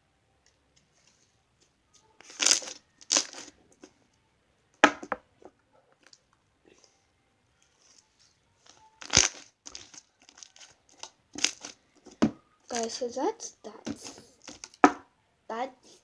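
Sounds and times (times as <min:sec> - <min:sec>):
slime crackling pops: 0:09.0 - 0:10.0.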